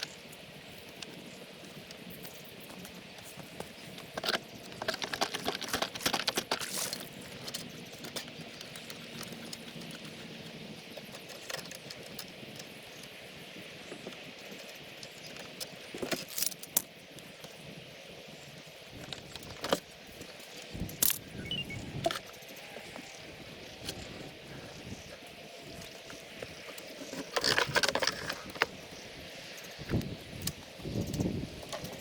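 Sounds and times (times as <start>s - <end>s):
parts clattering and clicking: 4.0s - 12.7s, 14.6s - 16.9s, 19.0s - 19.9s, 20.6s - 22.3s, 25.8s - 28.8s.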